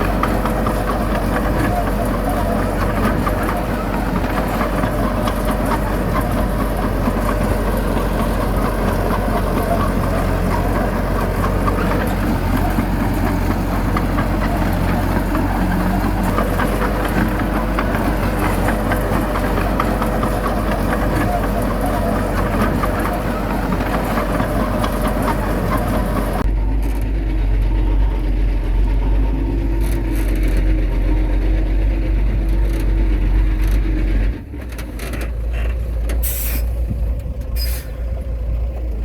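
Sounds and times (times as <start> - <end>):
heavy diesel engine running: 0.0 - 39.0
light clatter: 32.3 - 39.0.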